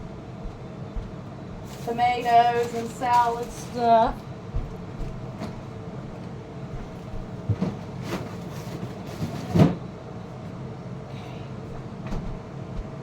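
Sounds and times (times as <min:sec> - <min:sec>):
steady low hum: 0:00.0 - 0:09.1, 0:09.8 - 0:13.0
groceries knocking and bumping: 0:07.4 - 0:09.8.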